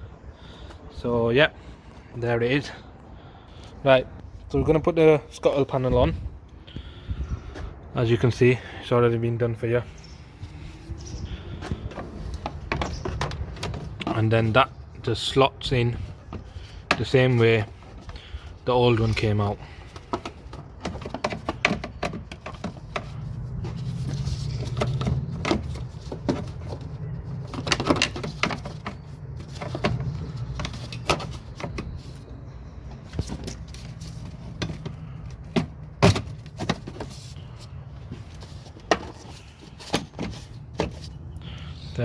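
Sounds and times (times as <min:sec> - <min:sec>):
plastic panel clicks and knocks: 0:11.6 - 0:14.6, 0:19.8 - 0:32.2, 0:32.9 - 0:37.3.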